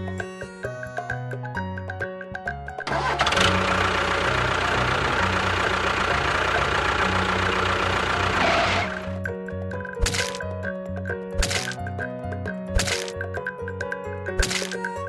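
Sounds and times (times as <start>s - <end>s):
background music: 0.0s - 15.0s
small motor running: 2.9s - 9.2s.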